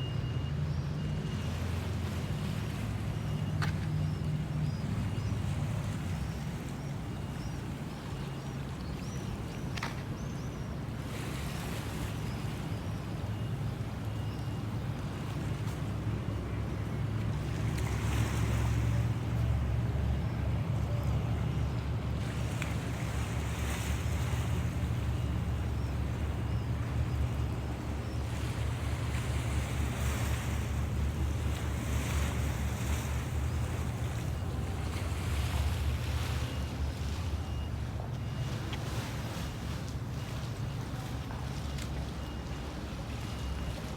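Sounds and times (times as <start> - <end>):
boat engine rumbling: 0.0 - 43.9
water washing and splashing: 14.8 - 42.2.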